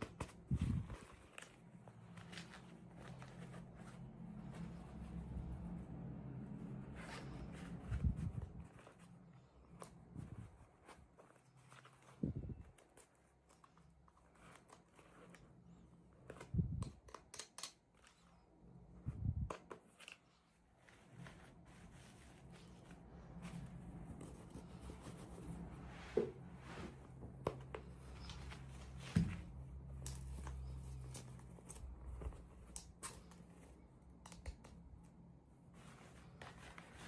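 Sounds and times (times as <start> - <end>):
low steady hum: 0.0 - 17.1, 17.9 - 37.0
plastic toy packaging clicks and taps: 16.8 - 18.2.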